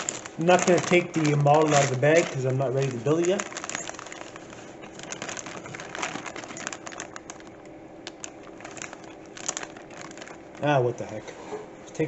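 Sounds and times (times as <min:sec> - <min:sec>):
plastic bag crinkling: 0:00.0 - 0:11.3.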